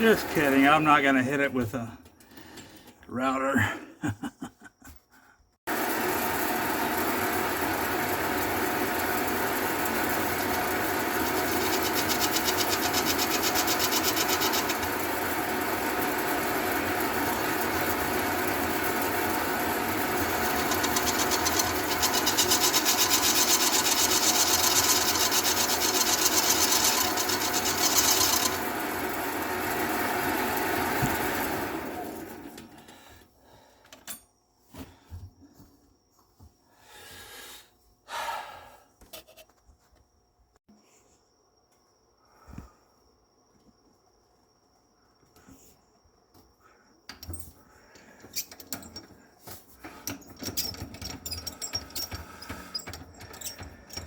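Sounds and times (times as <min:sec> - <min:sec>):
electric power tool running: 0:05.7 - 0:32.7.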